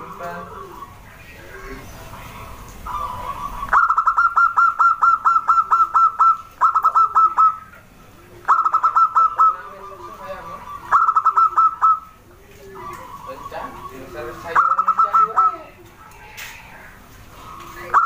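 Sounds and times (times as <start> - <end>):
soft low dove coos: 0.0 - 18.0
dove rapid sharp notes: 2.2 - 7.8, 8.4 - 12.2, 12.8 - 15.7.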